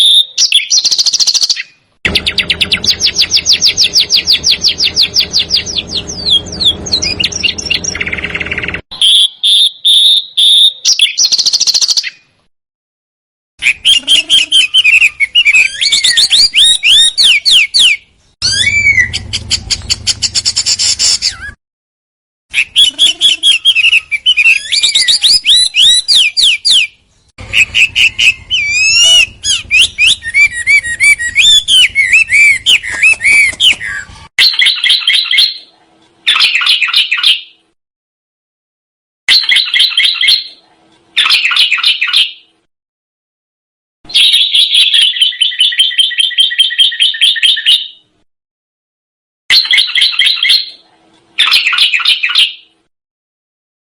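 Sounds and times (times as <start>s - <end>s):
harsh buzzy bird calls: 0.0s - 12.2s, 22.5s - 35.6s
songbird song: 0.0s - 12.4s, 13.6s - 21.6s, 22.5s - 35.7s.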